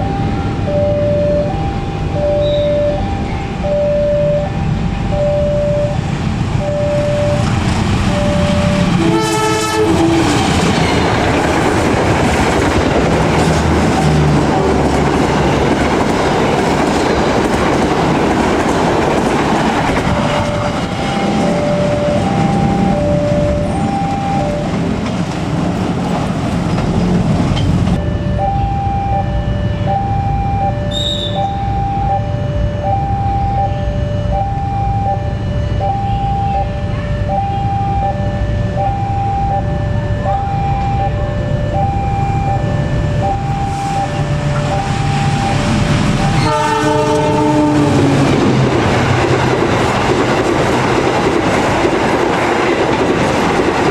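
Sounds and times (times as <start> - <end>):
crossing alarm beeping: 0.0 - 26.0, 26.9 - 53.9
train wheels rumbling and clattering: 7.2 - 28.0, 42.4 - 53.9
train horn blast: 7.3 - 11.2, 30.9 - 31.6, 46.2 - 48.5.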